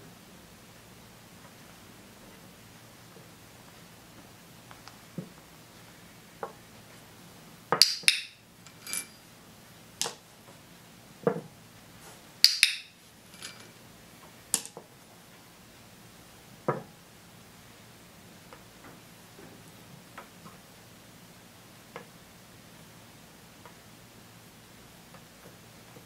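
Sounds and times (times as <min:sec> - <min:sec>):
small objects clattering on tabletop: 0:07.8 - 0:09.2, 0:12.4 - 0:13.8, 0:14.5 - 0:14.8.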